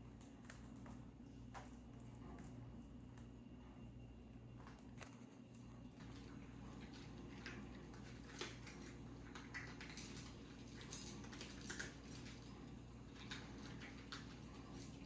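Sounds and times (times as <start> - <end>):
cats eating crunchy food: 4.6 - 15.0.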